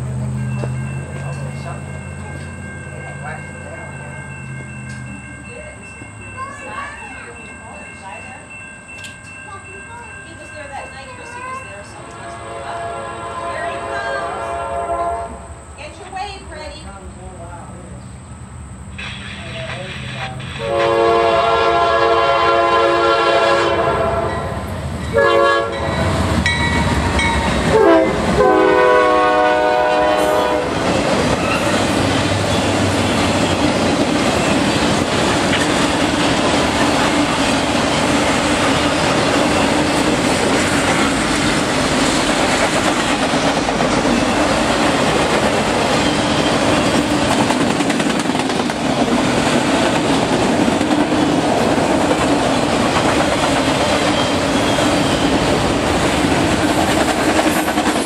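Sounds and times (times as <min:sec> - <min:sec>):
locomotive horn blasts: 0:12.0 - 0:15.5, 0:20.6 - 0:26.2, 0:27.7 - 0:30.8.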